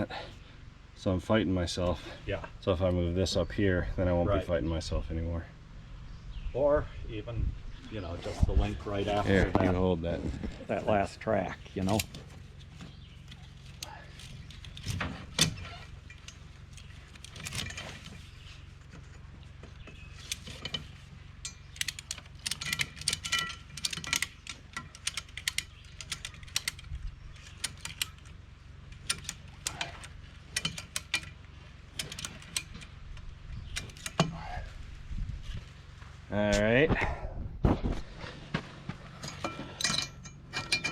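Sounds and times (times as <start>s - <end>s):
low steady hum: 0.0s - 40.9s
metal track links clinking: 10.9s - 34.6s, 39.1s - 40.9s
ratchets clicking: 11.8s - 18.4s, 19.8s - 34.5s.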